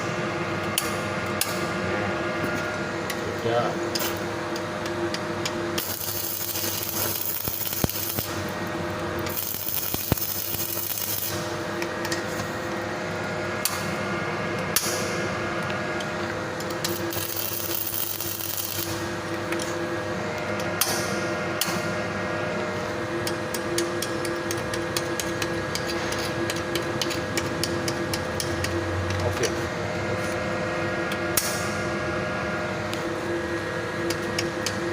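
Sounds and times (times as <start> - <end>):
welding machine electrical hum: 0.0 - 34.9
welding arc crackling and hissing: 5.6 - 12.6, 16.7 - 19.9.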